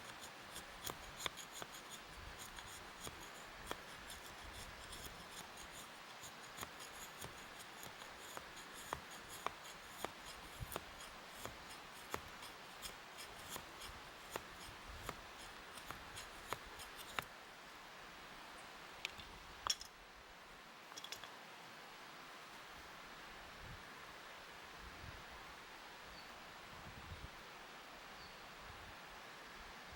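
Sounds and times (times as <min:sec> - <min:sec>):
sharp cutting or scraping clicks: 0:00.0 - 0:17.3.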